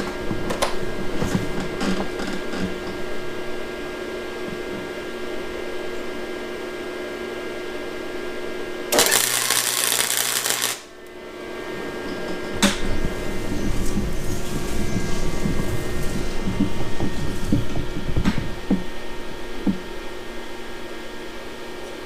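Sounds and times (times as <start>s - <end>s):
steady hum: 0.0s - 22.0s
welder arc crackling: 8.9s - 11.2s.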